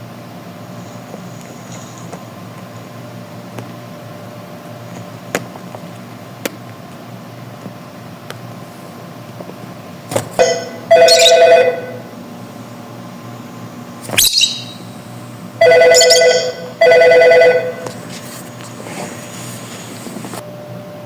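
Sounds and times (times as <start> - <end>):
bird mimicking a telephone ring: 10.4 - 12.1, 14.2 - 14.9, 15.6 - 17.9
bird whistles falling in pitch: 14.1 - 14.9.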